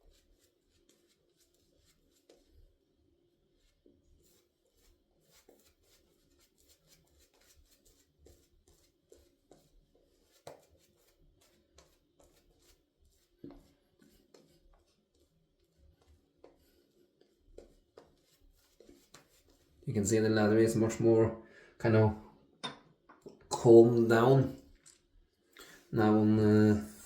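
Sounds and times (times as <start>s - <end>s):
razor shaving lathered skin: 3.6s - 20.6s.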